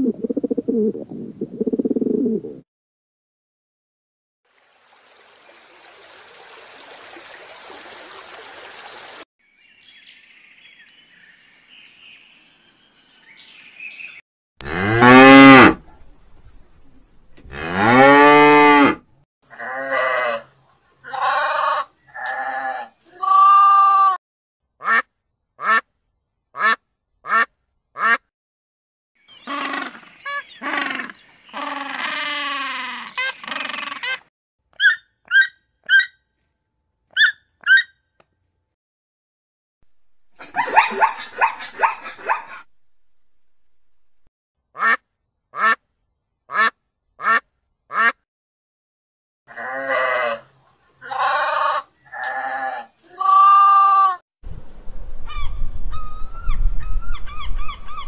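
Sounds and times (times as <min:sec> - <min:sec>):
drawn-out falling animal calls: 0:19.7 - 0:22.2, 0:29.3 - 0:36.2, 0:40.4 - 0:42.7, 0:49.8 - 0:54.2
lamb bleats: 0:21.1 - 0:24.2, 0:51.0 - 0:54.2.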